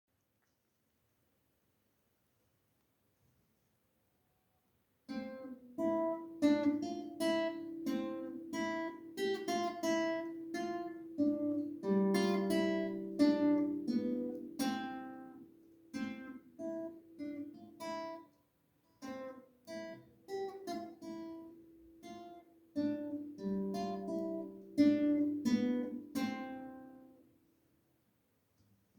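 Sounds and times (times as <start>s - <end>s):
acoustic guitar piece: 5.1s - 27.5s.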